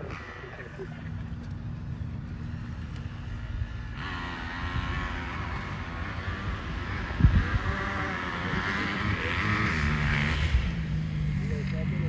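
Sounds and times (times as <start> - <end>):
dirt bike engines rumbling: 0.0 - 12.0.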